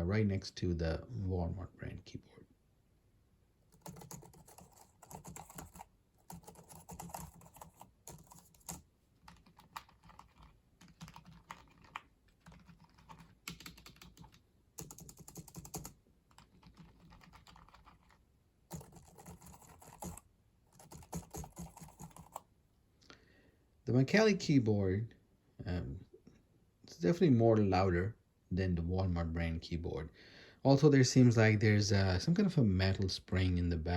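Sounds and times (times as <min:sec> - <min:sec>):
soft keyboard typing clicks: 0:03.7 - 0:22.4.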